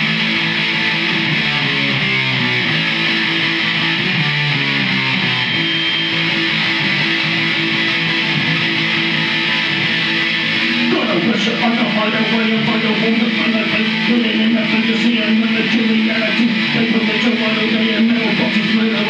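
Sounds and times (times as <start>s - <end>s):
guitars strumming chords: 0.0s - 19.0s.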